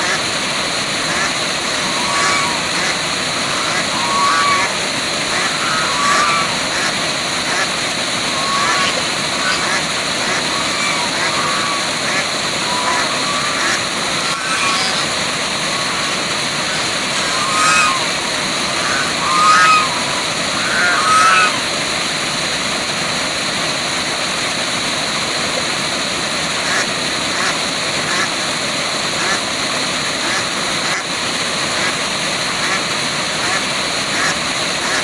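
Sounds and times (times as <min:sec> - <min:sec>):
waterfall rushing: 0:00.0 - 0:35.0
short bird calls: 0:01.7 - 0:07.7, 0:08.3 - 0:21.7.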